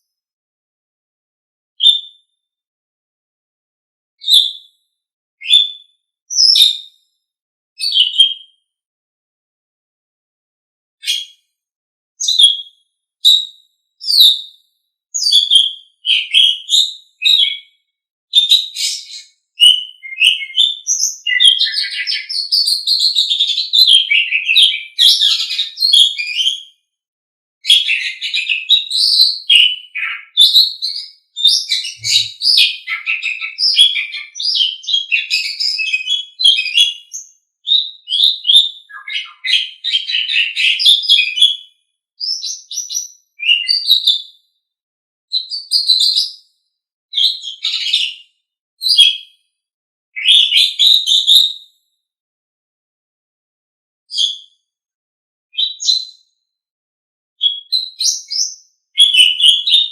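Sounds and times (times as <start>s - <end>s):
starling singing: 27.9s - 36.9s.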